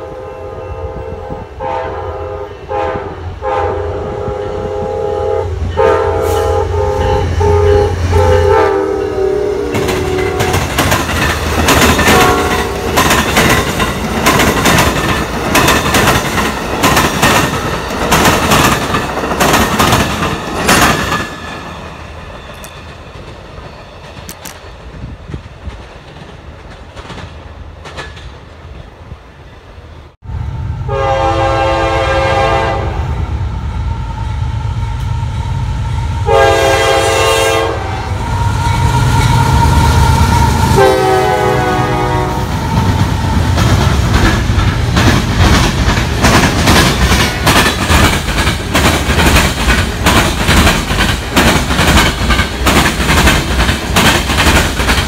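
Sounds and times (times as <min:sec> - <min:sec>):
locomotive air horn blasts: 0:00.0 - 0:10.7, 0:12.0 - 0:13.0, 0:30.8 - 0:33.2, 0:36.2 - 0:42.6
departing passenger train rumble: 0:00.0 - 0:55.0
wheels clacking over rail joints: 0:09.7 - 0:28.4, 0:42.5 - 0:55.0.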